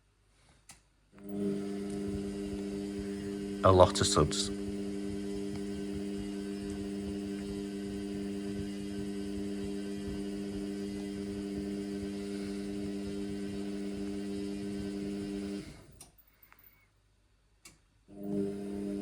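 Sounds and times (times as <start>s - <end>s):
drain pump humming: 1.2s - 15.8s.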